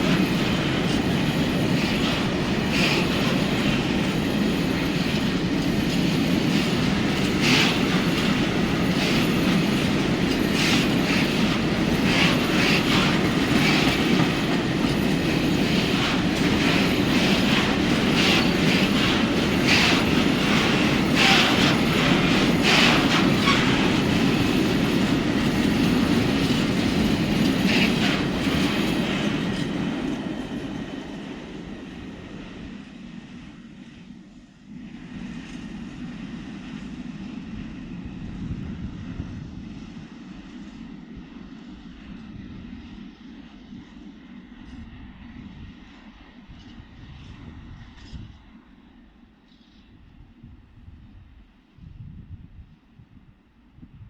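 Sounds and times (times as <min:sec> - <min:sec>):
freight train wagons rumbling: 0:00.0 - 0:33.2.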